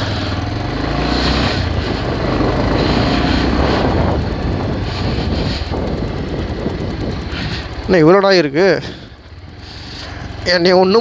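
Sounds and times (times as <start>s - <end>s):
motorcycle engine running: 0.0s - 11.0s
wind on microphone: 1.5s - 7.9s.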